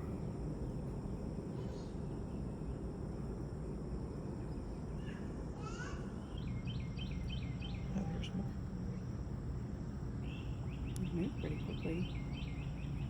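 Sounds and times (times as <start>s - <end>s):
insect drone: 0.0s - 13.0s
low background hum: 0.0s - 13.0s.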